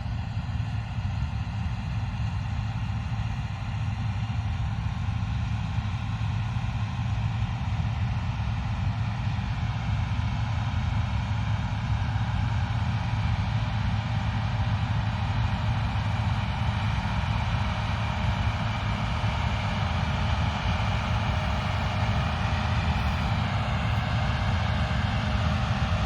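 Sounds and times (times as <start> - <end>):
combine harvester engine drone: 0.0 - 26.0
threshing machinery hum: 14.9 - 25.4.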